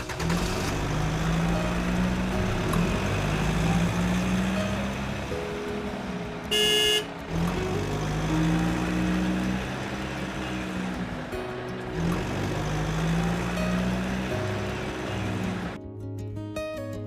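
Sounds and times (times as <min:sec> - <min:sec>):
vehicle engine running: 0:00.0 - 0:15.8
short horn toot: 0:06.5 - 0:07.1.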